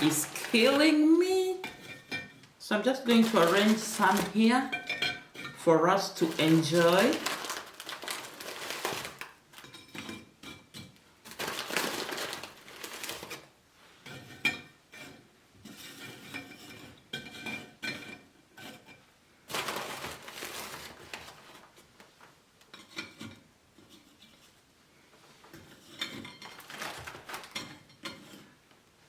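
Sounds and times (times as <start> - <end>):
cookie packet rustling: 0.0 - 1.8, 2.7 - 4.7, 5.9 - 10.0, 11.2 - 13.6, 19.5 - 22.4, 26.4 - 27.9
cookies clinking on a dish: 0.0 - 2.4, 3.0 - 13.4, 25.6 - 28.6.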